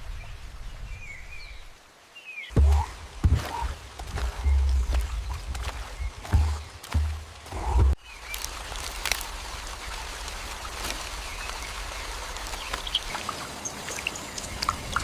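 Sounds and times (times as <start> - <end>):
rain and running water: 0.0 - 15.0
water drips: 2.5 - 15.0
deep low rumble: 2.6 - 8.0.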